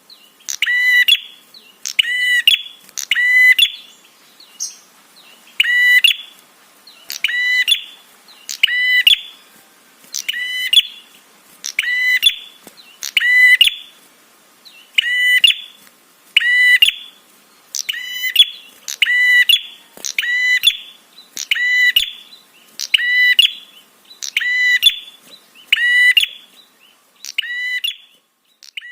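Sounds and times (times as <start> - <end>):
songbird rattling call: 0.4 - 9.4, 17.7 - 26.5.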